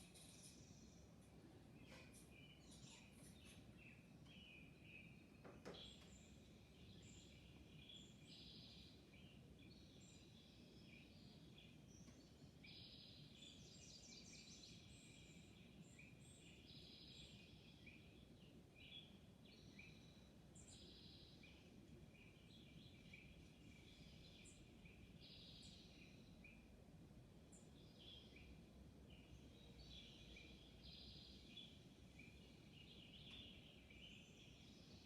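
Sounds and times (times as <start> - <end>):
faint low hum: 0.0 - 35.0
small birds chirping: 0.0 - 35.0
faint knock: 5.4 - 6.1.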